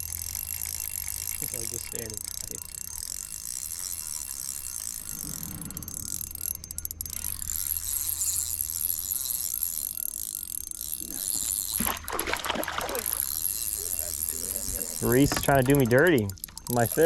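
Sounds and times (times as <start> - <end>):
fishing reel clicking: 0.0 - 17.0
constant hiss: 12.9 - 17.0.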